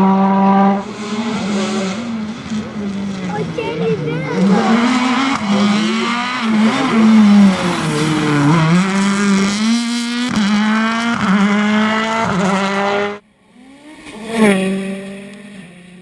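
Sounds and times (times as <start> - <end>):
rally car engine running hard: 0.0 - 13.2
second car engine: 0.0 - 16.0
sharp cracks at gear shifts: 0.8 - 13.0.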